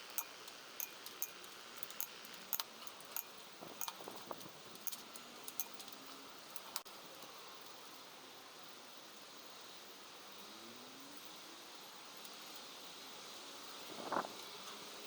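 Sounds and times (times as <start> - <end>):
light metallic clicks and clinks: 0.0 - 6.8
faint steady hiss: 0.0 - 15.0.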